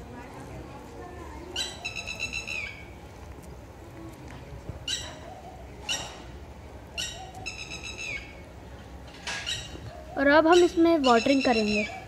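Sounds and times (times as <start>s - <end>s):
bird chirping: 7.0s - 8.4s.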